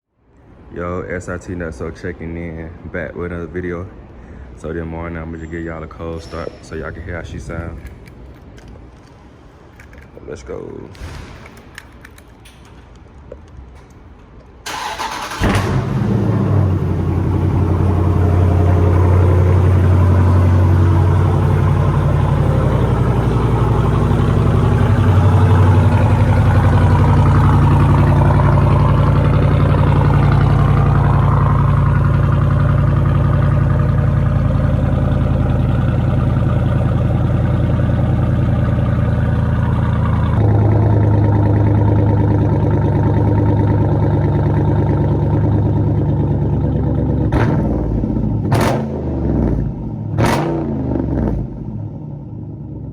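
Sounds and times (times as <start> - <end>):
starter motor cranking: 14.7 - 16.1
car engine high idle: 14.7 - 48.4.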